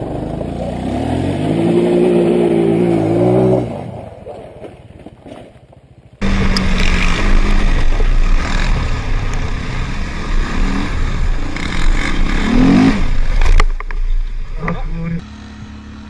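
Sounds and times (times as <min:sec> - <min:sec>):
quad engine revving: 0:00.0 - 0:03.9, 0:06.2 - 0:13.6, 0:14.5 - 0:16.0.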